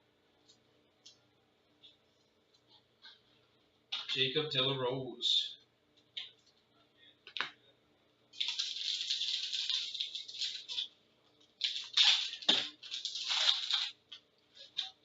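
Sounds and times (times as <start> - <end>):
foil wrapper crinkling: 8.4 - 15.0.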